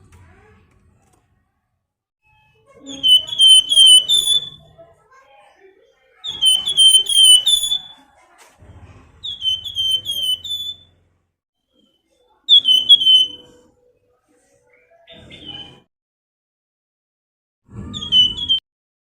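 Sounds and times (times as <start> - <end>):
songbird whistling falling notes: 2.9 - 4.6, 6.3 - 8.0, 9.3 - 10.9, 12.5 - 13.5.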